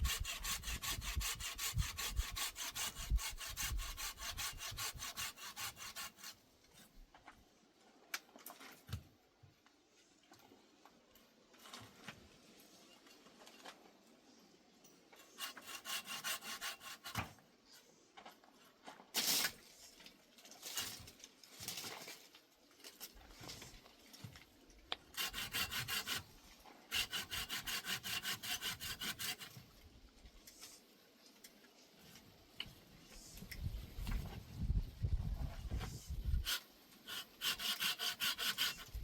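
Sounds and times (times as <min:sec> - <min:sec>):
hand saw cutting wood: 0:00.0 - 0:06.4, 0:15.2 - 0:17.4, 0:25.1 - 0:29.7, 0:36.2 - 0:39.0.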